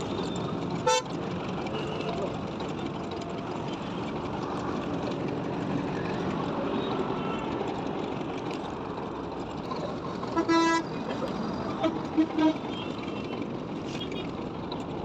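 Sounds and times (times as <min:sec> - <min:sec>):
passing traffic: 0:00.0 - 0:15.0
vehicle horn honking: 0:00.8 - 0:01.1, 0:10.4 - 0:10.9, 0:11.8 - 0:13.2.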